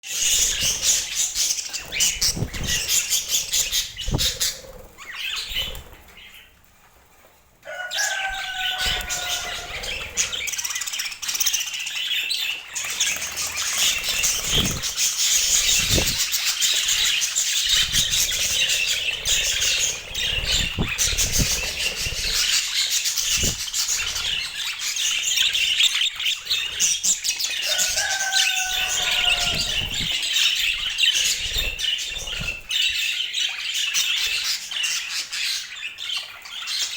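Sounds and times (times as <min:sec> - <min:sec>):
budgerigars chattering: 0:12.8 - 0:32.9.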